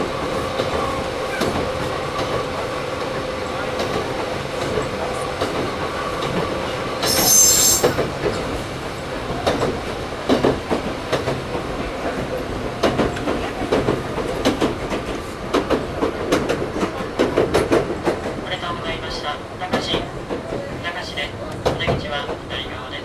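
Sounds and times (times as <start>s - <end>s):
electric train hum: 0.0s - 15.0s
high-pitched wheel squeal: 7.0s - 8.3s.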